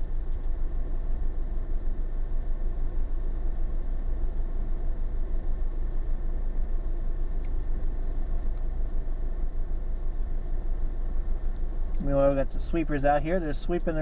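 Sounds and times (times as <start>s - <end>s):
faint click: 7.4s - 7.6s.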